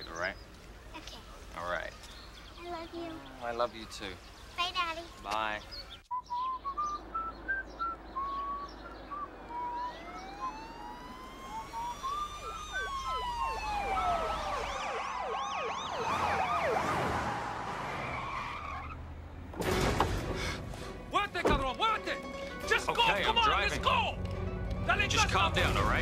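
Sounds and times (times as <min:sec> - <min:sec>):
birds chirping: 0:00.0 - 0:19.5, 0:21.0 - 0:26.0
police sirens wailing: 0:06.6 - 0:19.0
siren yelp: 0:07.2 - 0:18.9.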